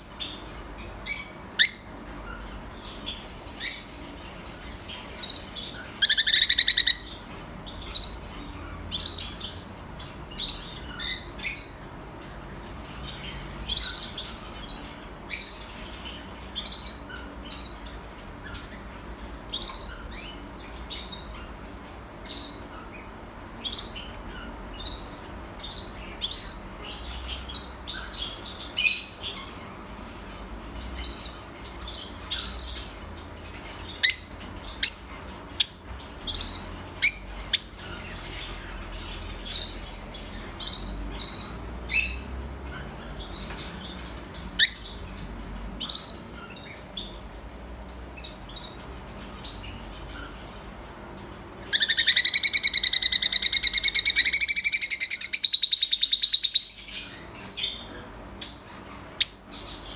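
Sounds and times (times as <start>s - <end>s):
lovebirds chirping: 0.0s - 59.9s.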